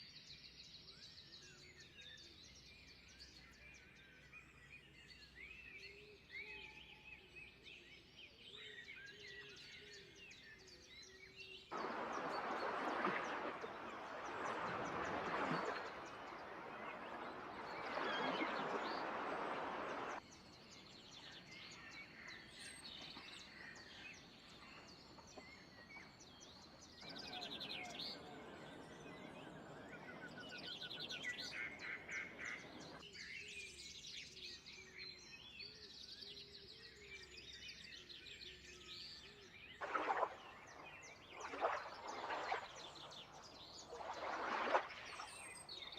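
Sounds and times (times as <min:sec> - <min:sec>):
birds chirping and trilling: 0:08.6 - 0:33.7, 0:39.6 - 0:45.9.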